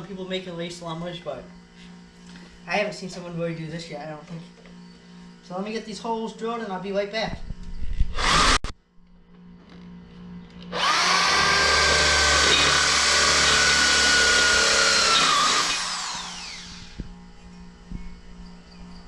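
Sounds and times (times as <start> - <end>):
electric drill boring metal: 8.0 - 8.7, 10.6 - 17.2.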